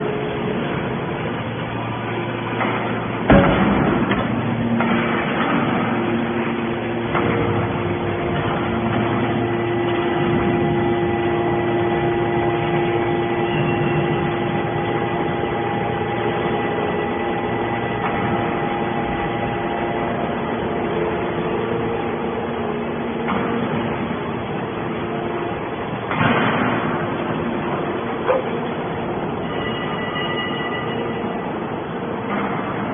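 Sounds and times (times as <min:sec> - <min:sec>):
baler machine humming: 0:00.0 - 0:32.9
loud metal clang: 0:02.6 - 0:06.4, 0:26.1 - 0:27.2.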